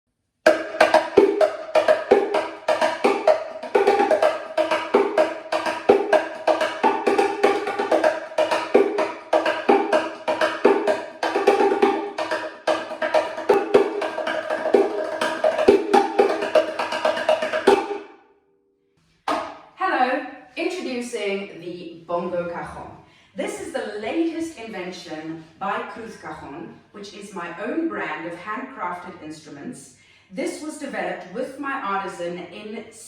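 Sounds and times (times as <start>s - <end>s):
hand drum played with hands: 0.5s - 18.0s.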